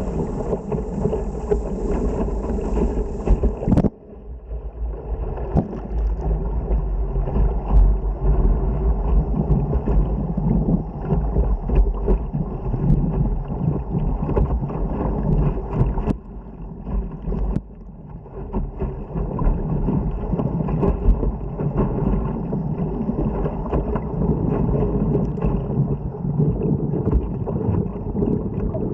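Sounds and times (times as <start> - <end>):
whitewater rapids rushing: 0.0 - 3.8
wind buffeting microphone: 0.0 - 4.0.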